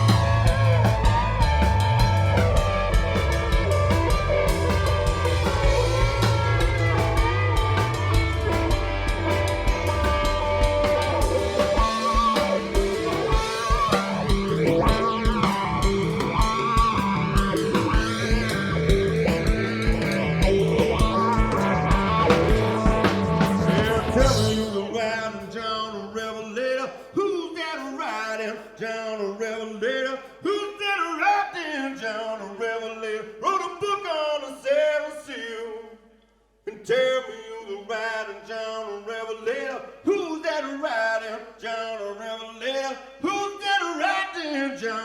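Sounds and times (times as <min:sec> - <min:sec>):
drum kit steady beat: 0:00.0 - 0:24.8
bass guitar: 0:00.0 - 0:25.4
electric guitar: 0:00.0 - 0:25.9.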